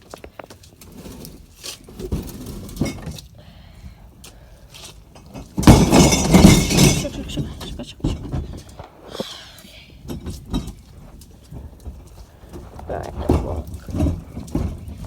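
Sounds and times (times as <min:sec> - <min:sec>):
bottles rattling clatter: 0:00.0 - 0:03.4, 0:04.9 - 0:08.9, 0:10.0 - 0:15.0
glass bottles clinking: 0:05.2 - 0:08.4.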